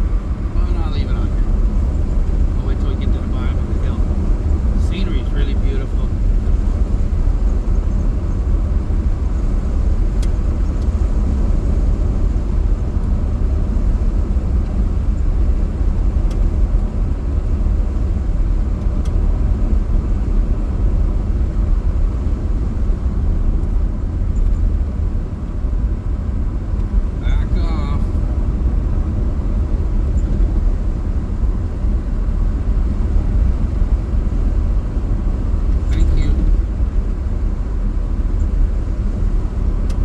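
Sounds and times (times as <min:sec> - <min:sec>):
car engine and road rumble: 0:00.0 - 0:40.0.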